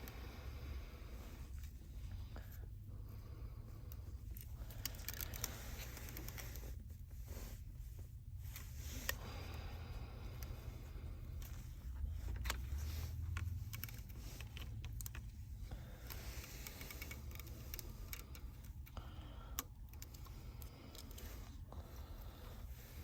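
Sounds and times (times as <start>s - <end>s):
steady low hum: 0.0s - 23.0s
smartphone parts clicking: 4.3s - 6.5s, 12.2s - 15.4s, 16.0s - 21.3s.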